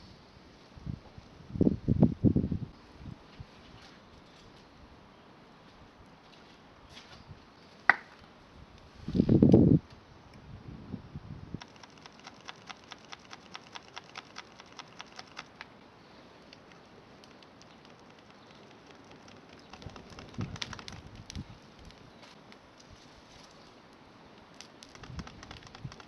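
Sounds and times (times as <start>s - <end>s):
rapid sharp clicks: 11.6s - 15.7s, 16.4s - 22.0s, 24.6s - 26.0s.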